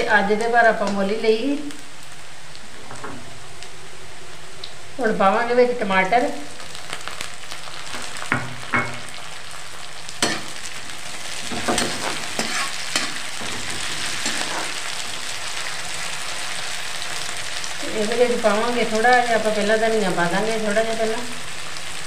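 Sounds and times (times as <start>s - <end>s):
tomatoes sizzling in hot oil: 0.0s - 22.0s
utensil scraping metal pan: 11.5s - 14.8s.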